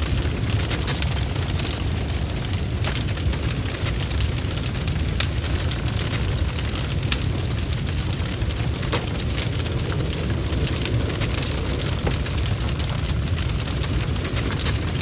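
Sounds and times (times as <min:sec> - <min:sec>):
bonfire crackling: 0:00.0 - 0:15.0.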